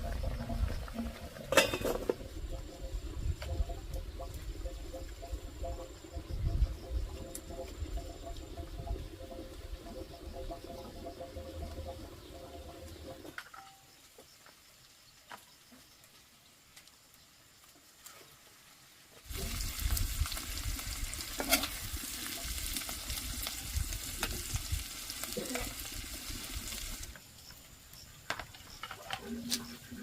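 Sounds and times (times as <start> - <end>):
food sizzling in a pan: 18.3 - 27.2.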